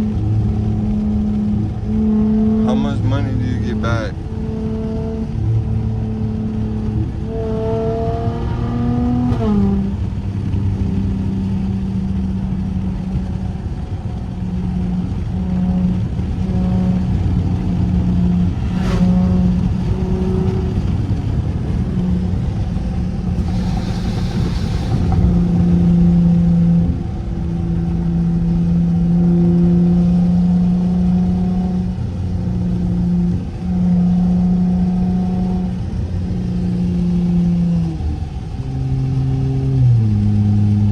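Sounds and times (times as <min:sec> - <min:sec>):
car exhaust revving: 0:00.0 - 0:40.9
rush of hiss: 0:23.4 - 0:25.3.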